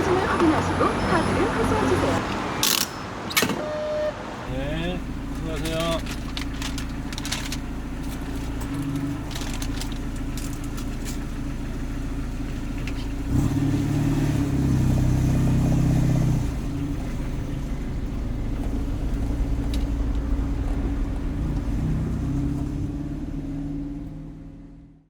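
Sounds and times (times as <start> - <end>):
car engine revving and accelerating: 12.4 - 25.0.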